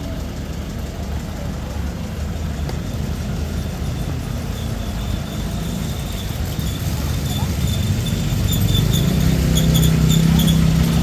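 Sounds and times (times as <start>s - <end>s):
motor vehicles rumbling: 0.0s - 11.0s.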